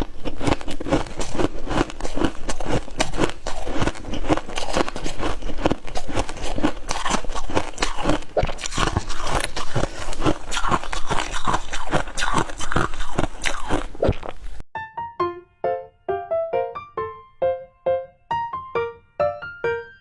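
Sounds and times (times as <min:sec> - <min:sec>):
crunchy biting and chewing: 0:00.0 - 0:14.6.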